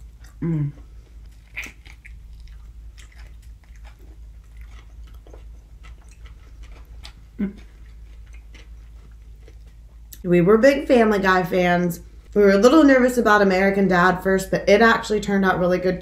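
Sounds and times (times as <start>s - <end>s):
wet chewing mouth sounds: 0.0s - 10.2s.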